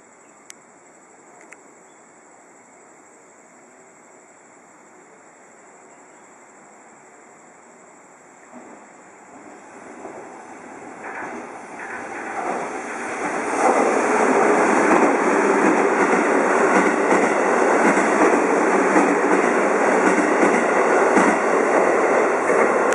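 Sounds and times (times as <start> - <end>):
train passing at speed: 6.5 - 22.9.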